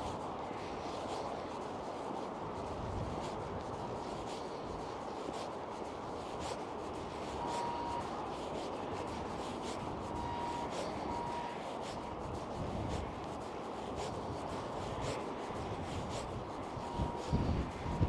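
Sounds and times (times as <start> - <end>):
road traffic noise: 7.2 - 18.0
road traffic passing: 15.1 - 18.0.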